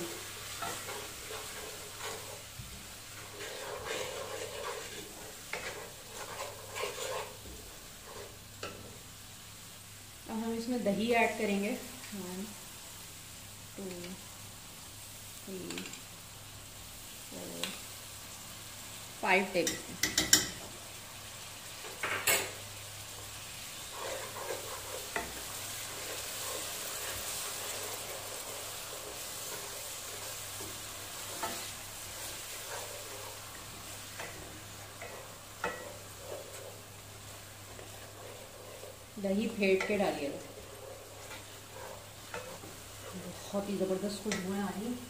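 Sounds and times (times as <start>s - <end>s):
wooden spoon stirring: 0.0s - 8.8s, 23.2s - 44.6s
oil sizzling in a pot: 0.0s - 45.0s
metal spoon clinking on pot: 19.6s - 20.6s.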